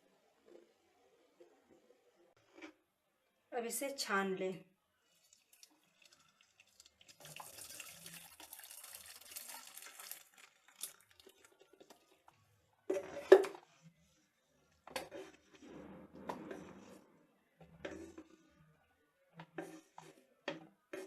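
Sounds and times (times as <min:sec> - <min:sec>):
water pouring through a strainer: 0:05.1 - 0:11.6.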